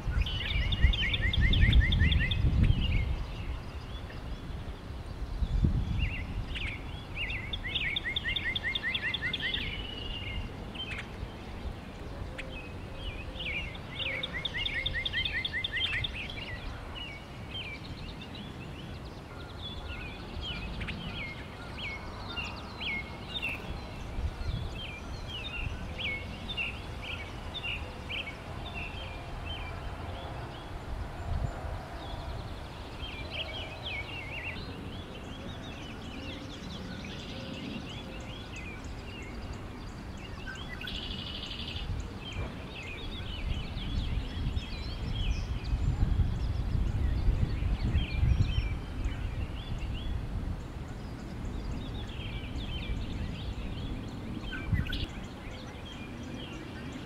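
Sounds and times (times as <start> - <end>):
small birds chirping: 0.0 - 57.0
bird trill: 0.1 - 4.2, 6.0 - 11.2.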